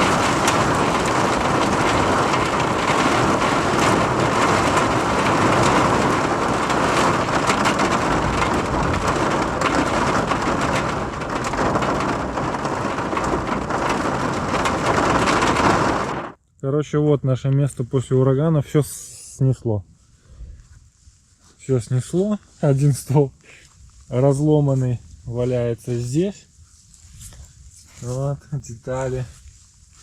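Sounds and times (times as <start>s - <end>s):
heavy rain: 0.0s - 16.4s
strong wind: 0.0s - 16.4s.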